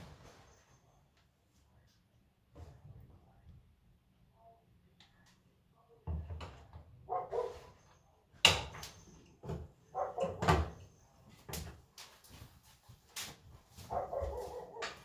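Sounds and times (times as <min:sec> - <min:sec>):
dog barking: 0:07.1 - 0:07.8, 0:09.9 - 0:10.7, 0:13.8 - 0:15.0.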